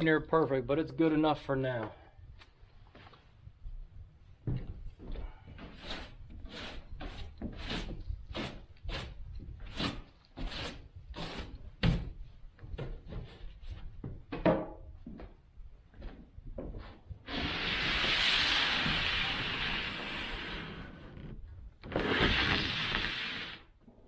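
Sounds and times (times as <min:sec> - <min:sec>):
wood worked in back-and-forth strokes: 0:05.6 - 0:12.1, 0:16.8 - 0:23.7.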